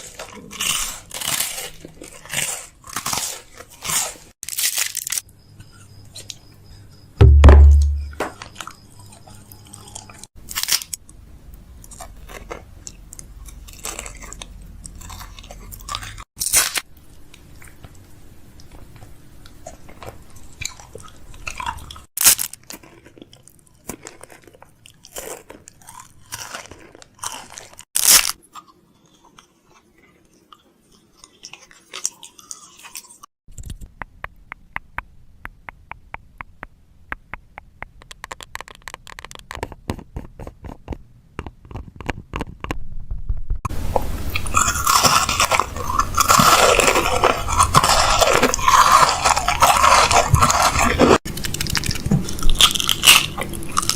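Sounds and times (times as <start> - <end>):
dense loud crunching: 7.2 - 8.2
sharp loud knocks: 7.2 - 8.3
even ticking: 33.5 - 39.5.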